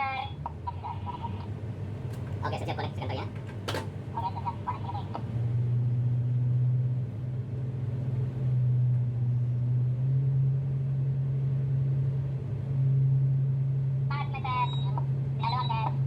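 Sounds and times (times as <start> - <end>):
tugboat diesel engines droning: 0.0 - 16.0.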